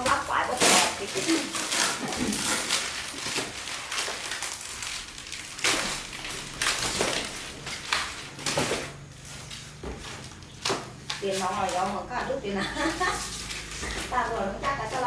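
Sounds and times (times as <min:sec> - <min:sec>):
objects knocking and scraping: 0:05.6 - 0:15.0.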